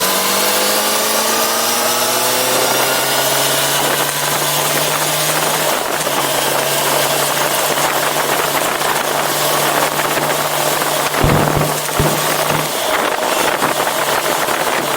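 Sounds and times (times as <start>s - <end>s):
motorcycle engine running: 11.2s - 12.9s.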